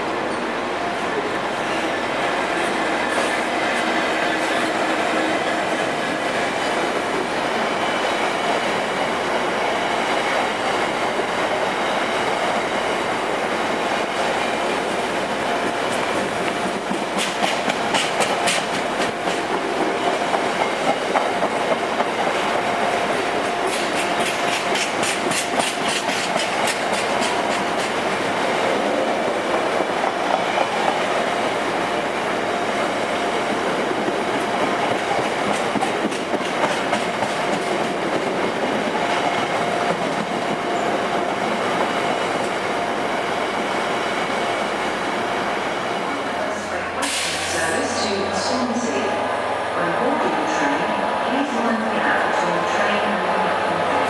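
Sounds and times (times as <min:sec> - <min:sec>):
train rumble and hum: 0:00.0 - 0:54.0
train wheels clicking over rail joints: 0:15.0 - 0:22.5, 0:23.5 - 0:28.1, 0:34.0 - 0:40.6.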